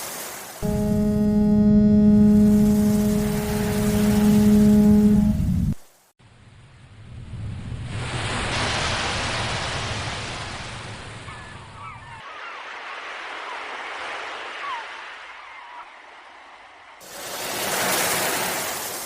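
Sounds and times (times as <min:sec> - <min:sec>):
surf rumble: 0:00.6 - 0:05.8
sea waves washing: 0:07.8 - 0:11.2, 0:17.0 - 0:19.0.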